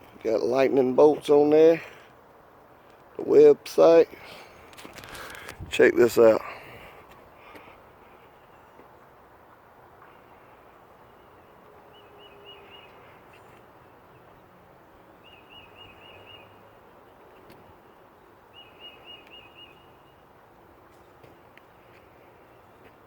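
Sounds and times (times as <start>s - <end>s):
outdoor background noise: 0.0s - 23.0s
bird singing repeated notes: 10.1s - 14.4s, 15.1s - 20.3s.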